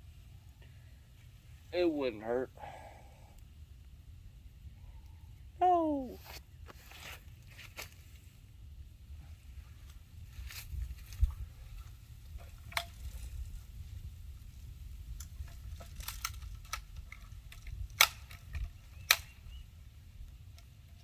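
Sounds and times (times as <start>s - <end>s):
bb gun clicks and snaps: 16.0s - 19.4s.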